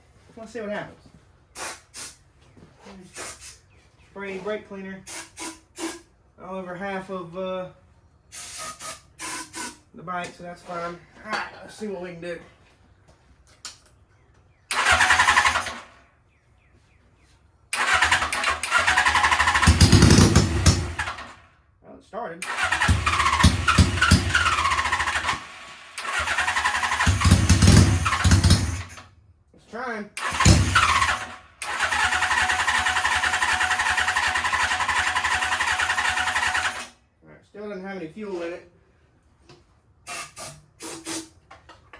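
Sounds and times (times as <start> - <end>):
motorcycle engine cranking: 14.7 - 15.9, 17.8 - 21.4, 22.4 - 29.0, 30.2 - 37.0.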